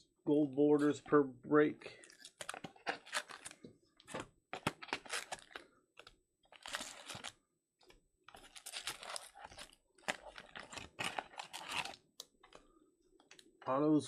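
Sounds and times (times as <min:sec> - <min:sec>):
packaging crinkling and tearing: 0:02.0 - 0:07.4, 0:08.3 - 0:12.6.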